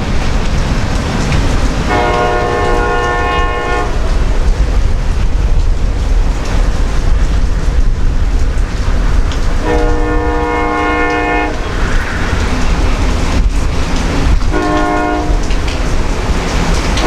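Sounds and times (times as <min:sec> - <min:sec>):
train rumbling past: 0:00.0 - 0:17.0
locomotive air horn: 0:01.9 - 0:04.1, 0:09.6 - 0:11.7, 0:14.5 - 0:15.5.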